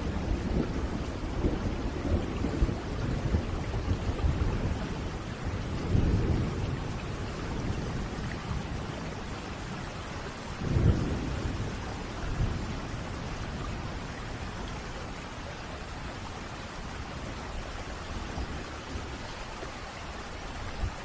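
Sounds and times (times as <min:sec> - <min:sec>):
rolling thunder: 0:00.0 - 0:09.9, 0:10.5 - 0:15.0
heavy rain: 0:00.0 - 0:21.0.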